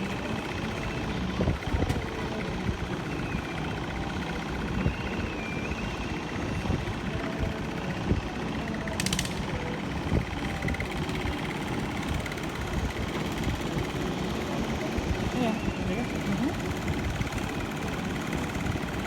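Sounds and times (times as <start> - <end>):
low engine rumble: 0.0 - 19.0.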